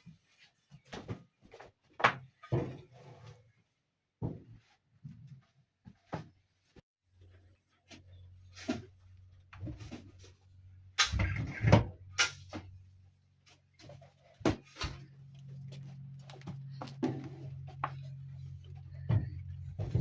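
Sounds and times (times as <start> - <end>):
steady low hum: 8.1 - 20.0
objects knocking and clattering: 13.8 - 20.0.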